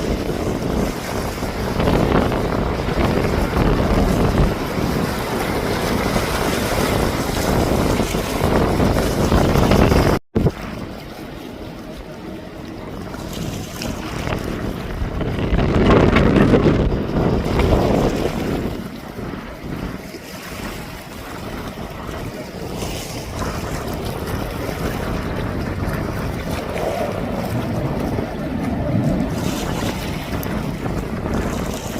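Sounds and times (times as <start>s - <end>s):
wind buffeting microphone: 0.0s - 31.9s.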